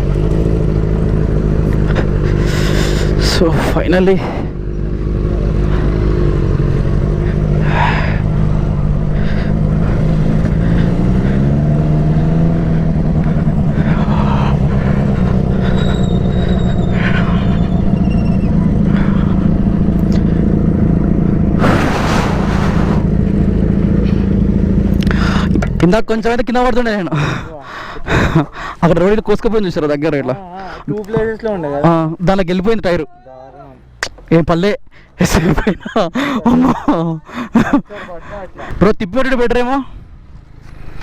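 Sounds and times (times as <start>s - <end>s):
motorcycle engine accelerating: 0.0s - 33.0s
road and wind noise: 0.0s - 41.0s
short rush of noise: 21.6s - 23.2s.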